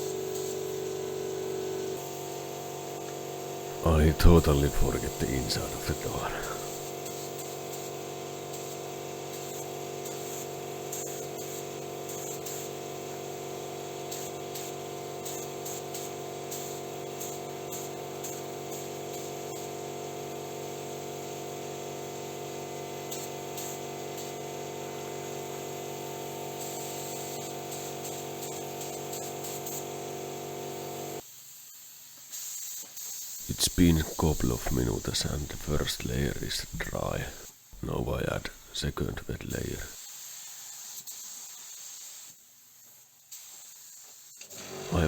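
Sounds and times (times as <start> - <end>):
steady hum: 3.6 - 6.9, 33.4 - 39.9
spray gun hissing: 4.2 - 7.9, 8.5 - 12.7, 32.4 - 37.5.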